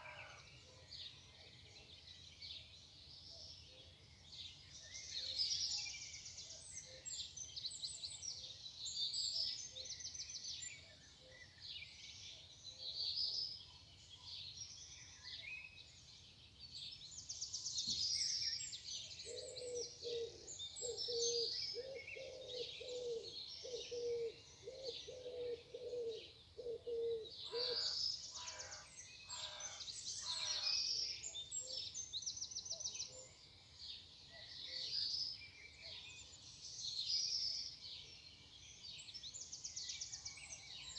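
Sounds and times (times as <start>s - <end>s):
songbirds chirping and trilling: 0.0s - 40.9s
dove cooing: 19.3s - 27.8s.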